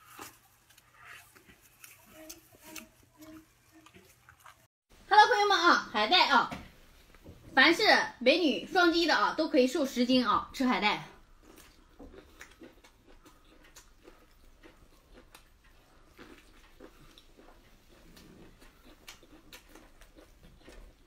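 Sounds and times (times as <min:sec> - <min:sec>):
chewing and biting kelp: 0:00.0 - 0:04.7, 0:11.2 - 0:21.0.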